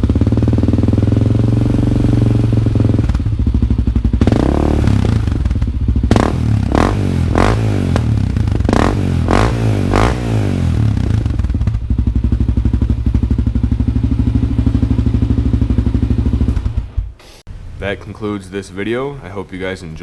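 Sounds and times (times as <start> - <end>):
engine lumpy idle: 0.0 - 6.6, 10.8 - 17.1
engine throttle cracks: 4.2 - 11.8, 15.6 - 17.4.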